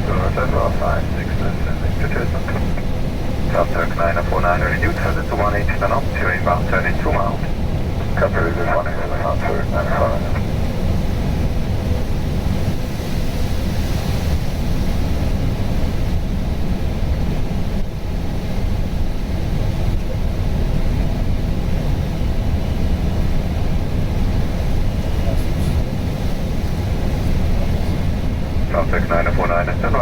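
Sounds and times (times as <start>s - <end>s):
aircraft cockpit low rumble: 0.0s - 30.0s.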